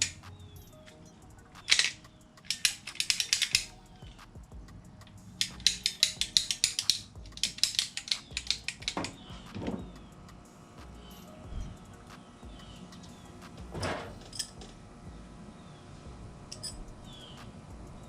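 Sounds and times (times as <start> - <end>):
ratchet clicking: 0.0 - 14.8, 16.5 - 18.0.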